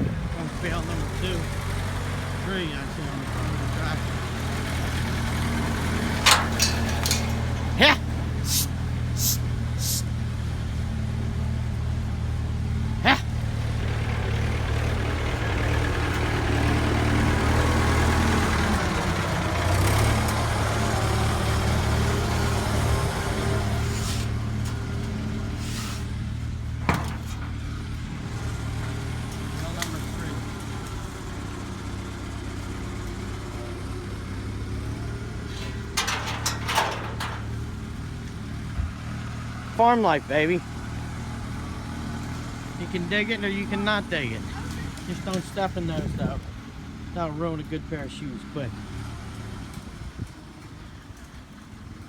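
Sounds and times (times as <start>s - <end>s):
tractor engine idling: 0.0s - 49.5s
sharp clatters: 5.9s - 10.0s, 35.4s - 37.8s
short hiss: 8.5s - 10.1s.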